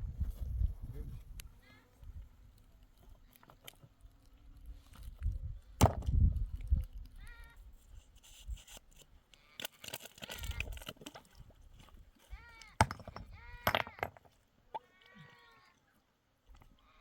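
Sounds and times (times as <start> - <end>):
sheep or goats bleating: 14.8 - 15.8.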